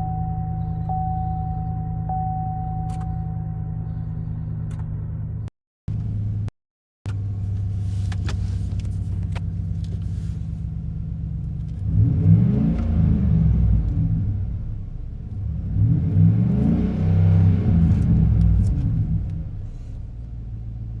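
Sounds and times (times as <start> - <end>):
truck engine idling and revving: 0.0 - 6.5, 7.1 - 21.0.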